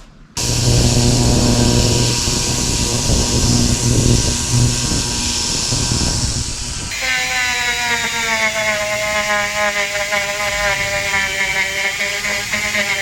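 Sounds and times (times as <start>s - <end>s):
pulsing low hum: 0.4s - 7.0s
power tool running with hiss: 0.4s - 13.0s.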